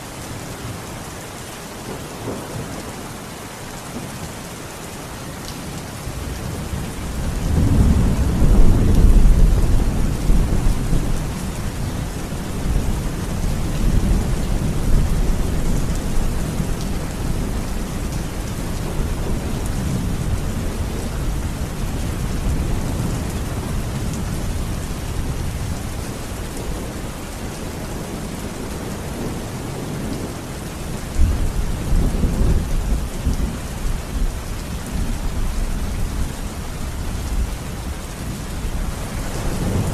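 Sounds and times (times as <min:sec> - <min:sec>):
steady rain: 0:00.0 - 0:39.9
rolling thunder: 0:06.2 - 0:27.0, 0:38.2 - 0:39.9.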